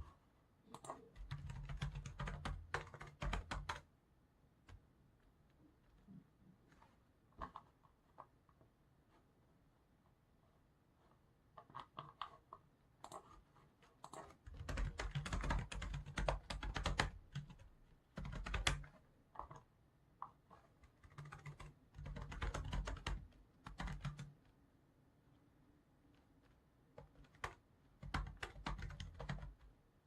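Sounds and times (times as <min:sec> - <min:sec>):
typing on computer keyboard: 0:00.7 - 0:03.9, 0:11.6 - 0:24.4, 0:26.4 - 0:29.7.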